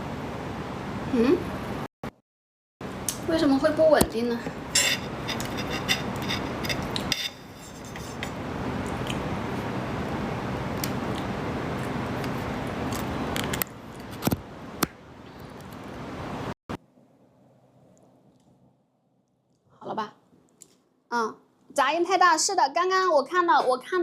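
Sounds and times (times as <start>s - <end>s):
metal utensil clinking: 4.8s - 7.4s.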